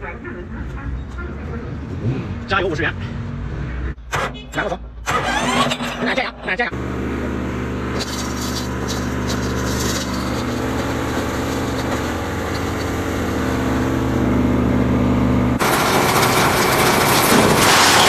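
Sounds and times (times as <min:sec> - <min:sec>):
diesel engine running: 0:04.8 - 0:18.0
harsh rushing crusher noise: 0:06.7 - 0:18.0.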